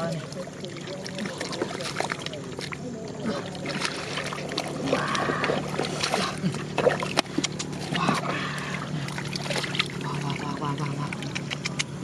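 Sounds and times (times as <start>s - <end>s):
muddy water splashing: 0.0s - 12.0s
steady low hum: 0.0s - 12.0s
wet slaps and clicks: 7.1s - 7.8s, 10.9s - 12.0s.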